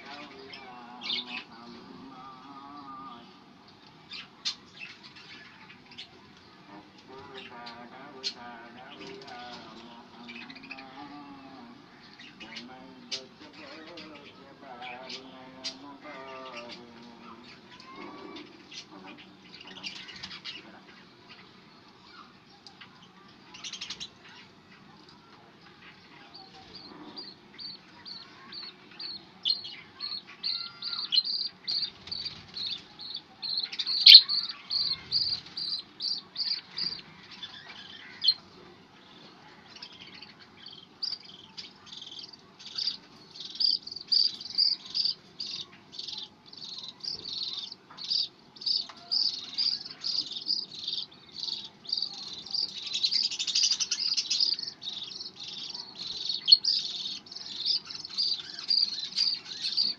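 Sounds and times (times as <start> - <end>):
budgerigars chirping: 26.4 - 38.4, 39.8 - 59.9.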